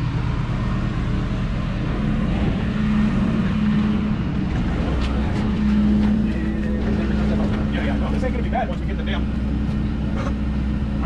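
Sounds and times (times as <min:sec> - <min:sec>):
engine running at low speed: 0:00.0 - 0:11.0.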